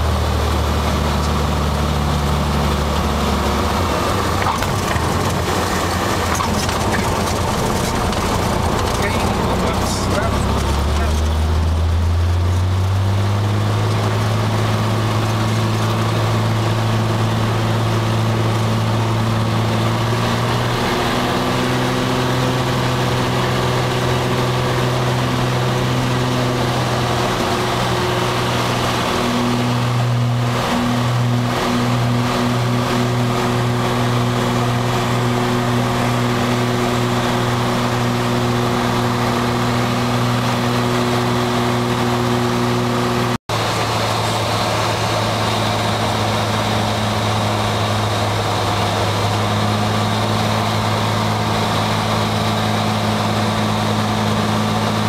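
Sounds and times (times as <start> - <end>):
propeller plane engine droning: 0.0 - 55.0.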